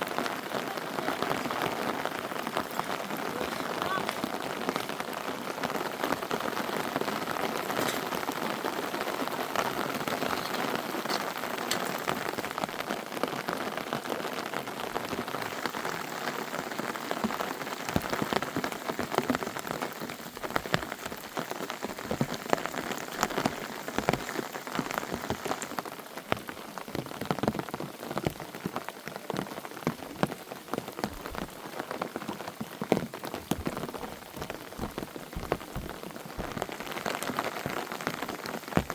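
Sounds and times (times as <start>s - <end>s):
raindrops striking close by: 0.0s - 38.9s
steady rain falling: 0.0s - 38.9s.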